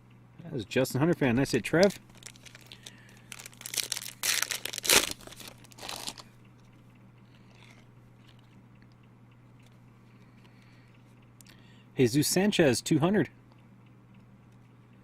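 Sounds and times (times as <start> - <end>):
wrapper crinkling and tearing: 1.6 - 6.3.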